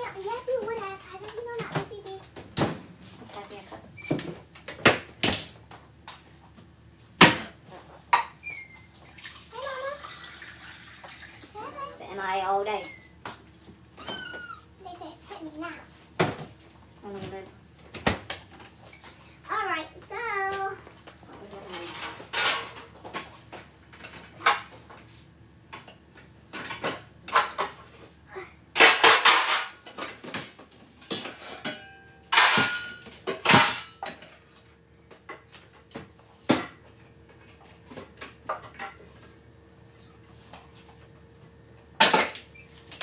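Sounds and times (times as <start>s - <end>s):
dishes and utensils clattering: 21.1s - 25.2s, 25.8s - 27.9s, 28.8s - 34.5s, 42.0s - 42.6s.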